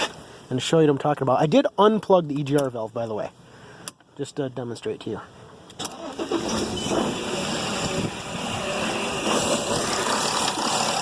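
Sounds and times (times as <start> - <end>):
diesel engine running: 5.9 - 11.0.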